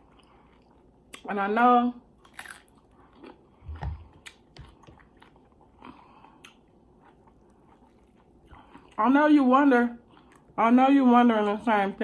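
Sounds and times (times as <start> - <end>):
chewing food with mouth clicks: 2.2 - 9.0.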